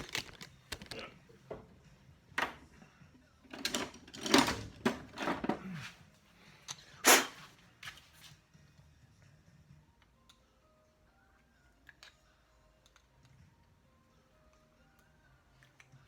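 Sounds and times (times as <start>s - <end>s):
tools clattering in a drawer: 3.5s - 5.9s.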